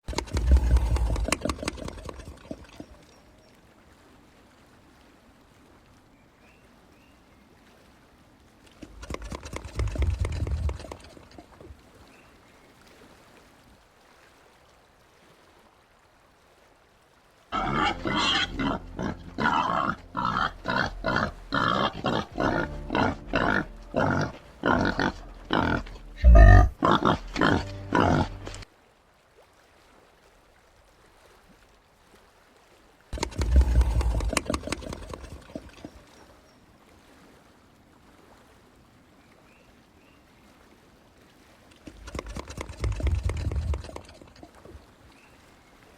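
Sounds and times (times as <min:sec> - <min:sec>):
peccaries grunting: 0:00.1 - 0:02.9, 0:17.6 - 0:28.6, 0:33.2 - 0:36.0.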